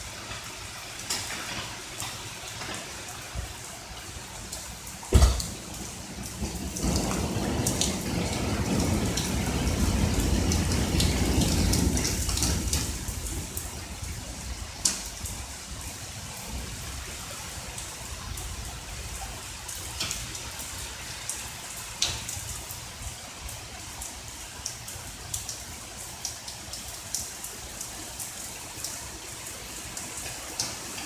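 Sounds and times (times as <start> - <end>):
close raindrops: 0.0 - 31.0
steady rain: 0.0 - 31.0
thunder rolling: 5.1 - 19.4.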